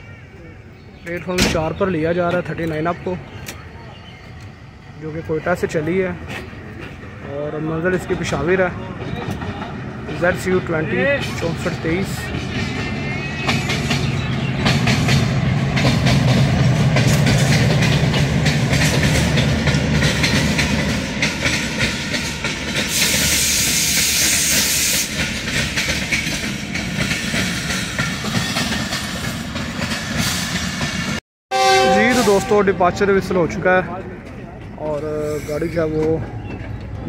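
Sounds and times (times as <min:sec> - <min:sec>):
locomotive engine rumble: 0:00.2 - 0:37.0
coaches clattering over rail joints: 0:05.2 - 0:31.2, 0:33.0 - 0:37.0
hiss of released air: 0:22.9 - 0:25.2.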